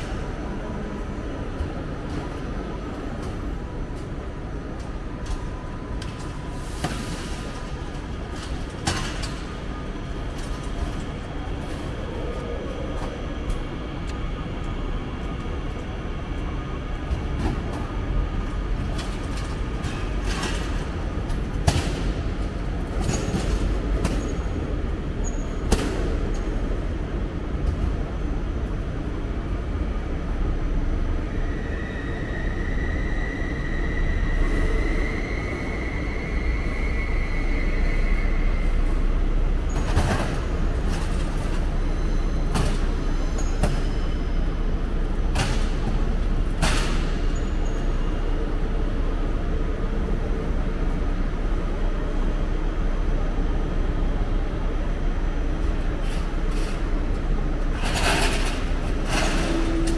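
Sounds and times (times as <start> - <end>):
train rumbling: 0.0 - 59.9
high squeal: 31.2 - 39.9.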